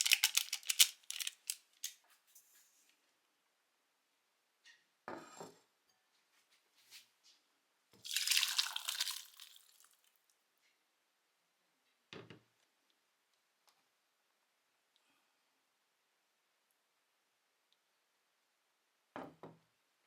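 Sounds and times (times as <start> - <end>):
liquid splashing: 8.0 - 10.0.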